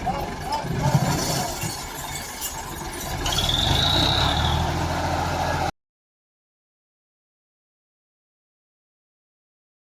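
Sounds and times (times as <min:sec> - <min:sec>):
tractor diesel engine running: 0:00.0 - 0:05.7
high squeal: 0:01.2 - 0:04.8.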